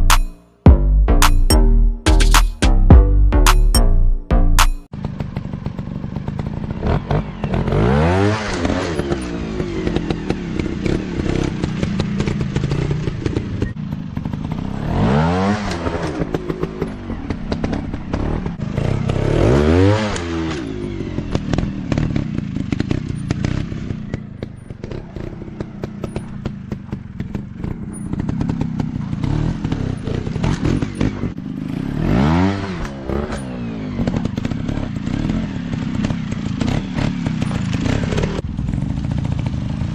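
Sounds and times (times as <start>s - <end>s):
dirt bike engines running: 4.9s - 39.9s
dirt bike revving sharply: 6.2s - 24.2s, 27.6s - 39.9s.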